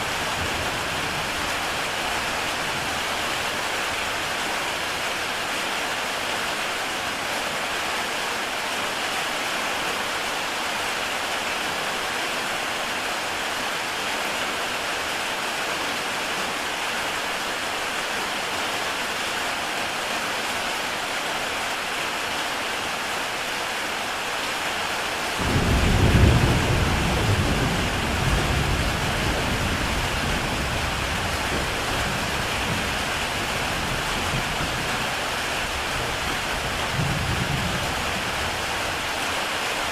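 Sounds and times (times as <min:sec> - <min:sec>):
heavy rain on a tile roof: 0:00.0 - 0:39.9
thunder rumbling: 0:25.4 - 0:35.4.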